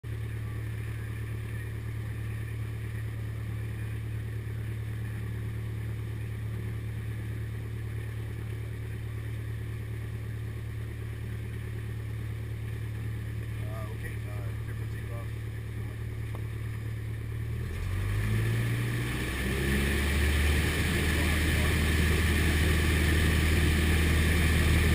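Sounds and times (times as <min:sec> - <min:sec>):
propeller plane engine droning: 0:00.0 - 0:24.9.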